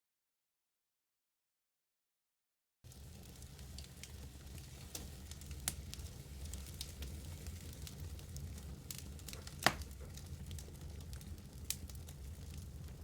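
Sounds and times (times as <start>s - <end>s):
wood fire crackling: 2.9s - 13.0s.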